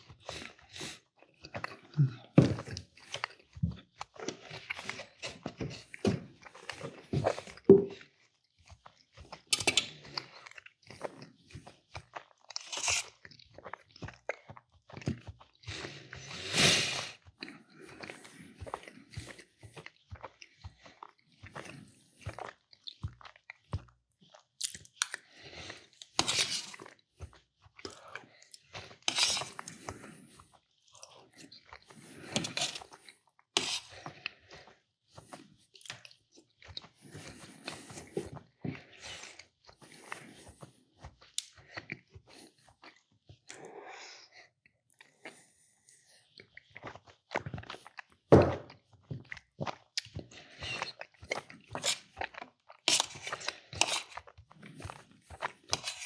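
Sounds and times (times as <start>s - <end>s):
person chewing and biting: 8.6s - 34.1s, 49.2s - 56.0s.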